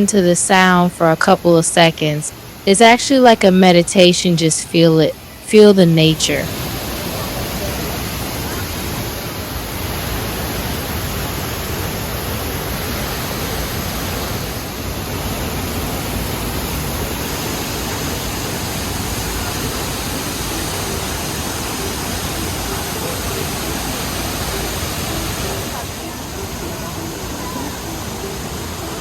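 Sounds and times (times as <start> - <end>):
waterfall roar: 6.4 - 29.0.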